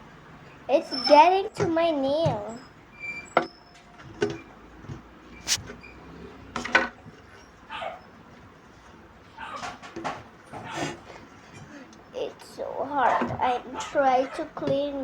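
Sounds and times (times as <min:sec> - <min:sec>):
slime squeezed by hand: 0:05.4 - 0:05.7.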